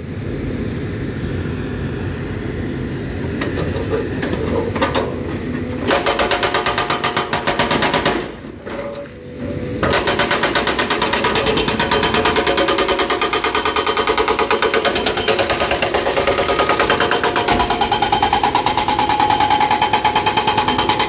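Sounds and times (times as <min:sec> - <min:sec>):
excavator engine running: 0:00.2 - 0:21.0
hydraulic breaker hammering on rock: 0:05.8 - 0:08.4, 0:09.8 - 0:21.0.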